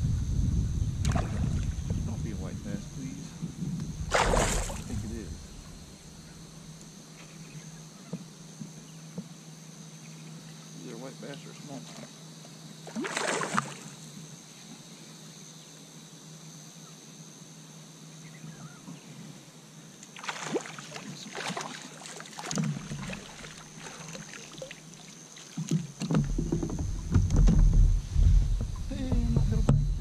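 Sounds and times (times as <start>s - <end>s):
low rumble: 0.0s - 6.7s, 26.2s - 30.0s
water sloshing around kayak: 1.0s - 8.2s, 12.9s - 14.0s, 20.1s - 30.0s.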